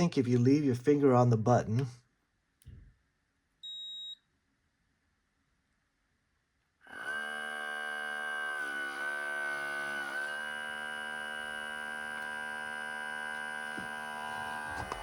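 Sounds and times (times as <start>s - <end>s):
short high beep: 3.6s - 4.2s
espresso machine pump humming: 6.9s - 15.0s.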